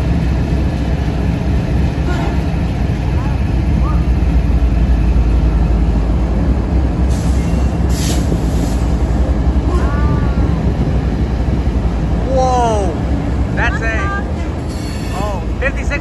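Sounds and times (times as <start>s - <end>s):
diesel locomotive engine rumble: 0.0s - 16.0s
falling squeal: 14.7s - 15.4s.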